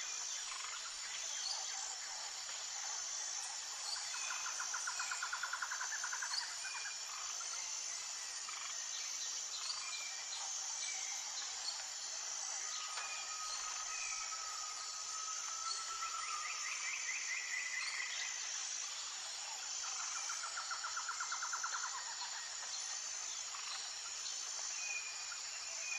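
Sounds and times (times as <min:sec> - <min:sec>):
insect chorus: 0:00.0 - 0:25.9.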